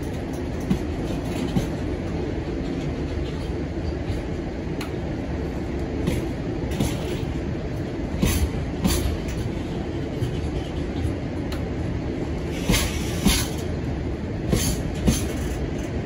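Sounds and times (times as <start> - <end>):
freight wagons rumbling: 0.0 - 16.0.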